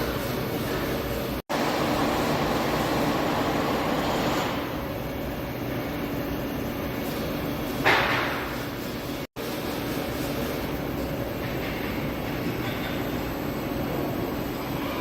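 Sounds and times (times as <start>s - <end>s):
machine carriage whirring: 1.5s - 5.4s.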